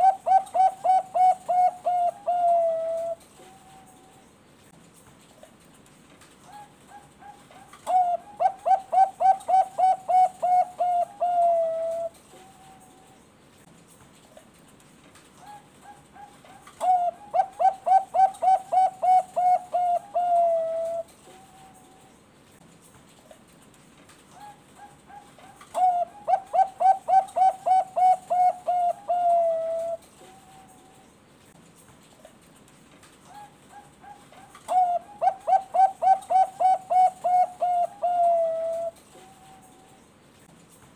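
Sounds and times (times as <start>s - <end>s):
dove cooing song: 0.0s - 4.3s, 6.4s - 13.2s, 15.4s - 22.1s, 24.3s - 31.1s, 33.2s - 40.0s.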